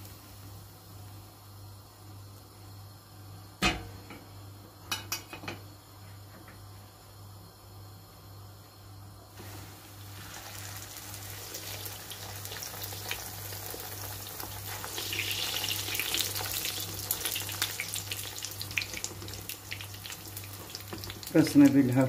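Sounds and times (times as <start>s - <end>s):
dough deep-frying in hot oil: 0.0s - 6.2s, 8.6s - 22.0s.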